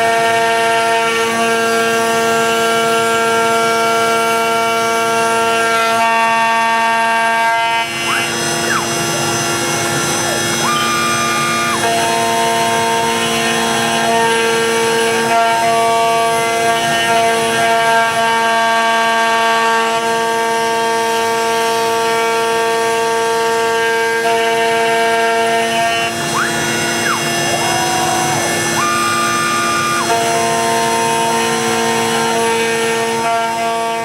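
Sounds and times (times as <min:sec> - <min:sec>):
router spindle running: 0:00.0 - 0:34.0
stepper motors whining: 0:00.0 - 0:34.0.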